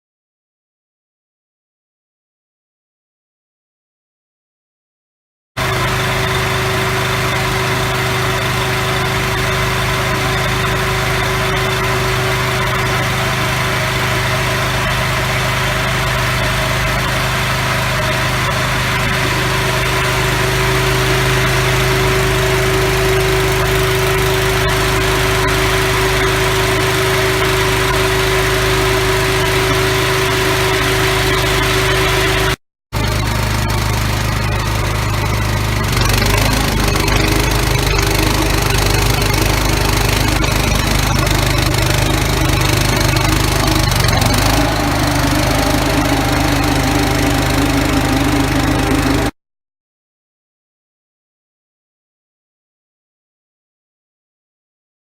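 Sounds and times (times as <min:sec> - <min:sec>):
motor running with steady hum: 0:05.6 - 0:49.4.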